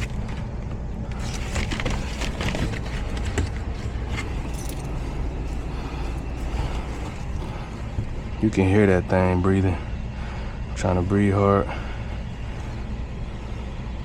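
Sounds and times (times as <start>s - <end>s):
air filter clicks and rustles: 0.0s - 8.4s
air handler blower humming: 0.0s - 14.0s.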